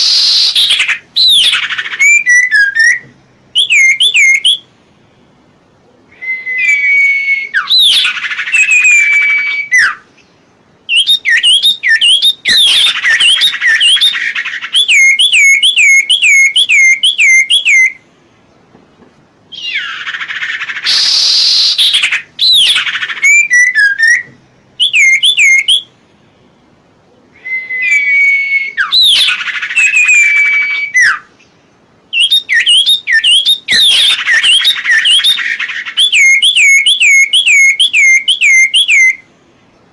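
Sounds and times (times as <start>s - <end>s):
raspy bird calls: 0.0s - 18.6s, 19.5s - 26.4s, 27.0s - 39.7s
songbird singing: 0.0s - 39.9s.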